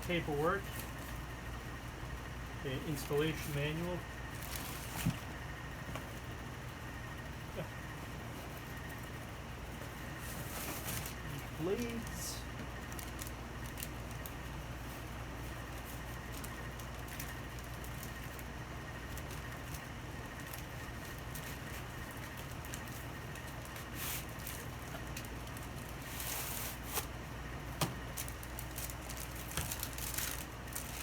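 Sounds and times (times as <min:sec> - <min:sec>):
steady low hum: 0:00.0 - 0:31.0
paper wrapping rustling: 0:04.3 - 0:05.3, 0:10.1 - 0:12.2, 0:12.8 - 0:27.2, 0:28.0 - 0:31.0.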